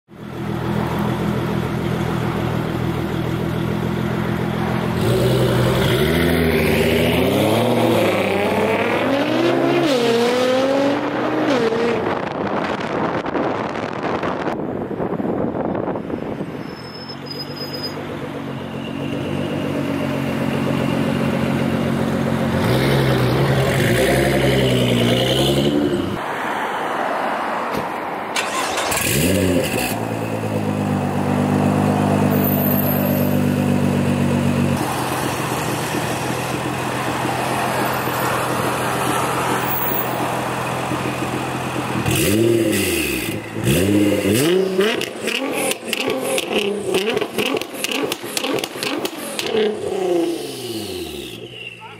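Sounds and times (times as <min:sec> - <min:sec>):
car engine revving: 0:04.6 - 0:14.4, 0:28.4 - 0:32.3, 0:33.5 - 0:51.7.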